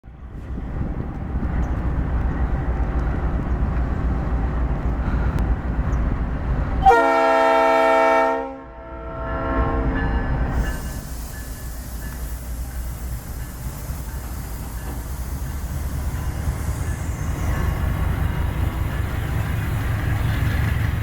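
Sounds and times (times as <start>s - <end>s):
locomotive engine rumble: 0.0s - 8.2s, 9.0s - 21.0s
locomotive air horn: 6.8s - 10.0s.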